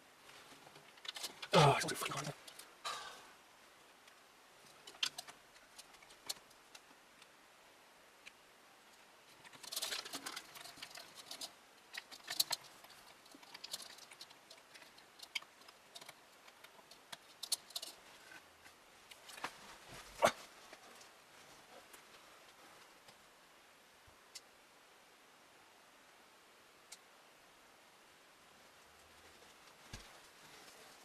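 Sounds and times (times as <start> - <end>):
computer hardware clicking and rattling: 9.4 - 18.0.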